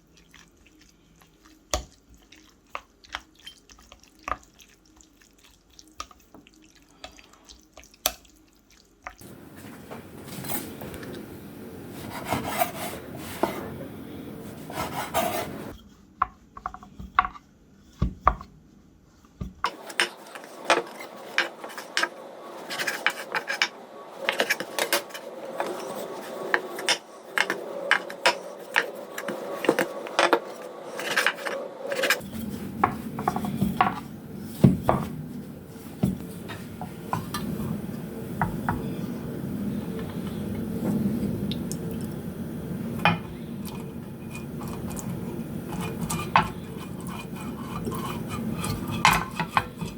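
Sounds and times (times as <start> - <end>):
scraping and rubbing: 11.8 - 16.0, 19.7 - 37.7, 43.3 - 49.9.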